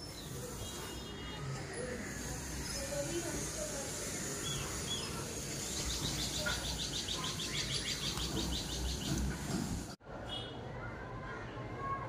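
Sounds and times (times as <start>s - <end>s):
bird chirping and trilling: 2.5s - 9.3s.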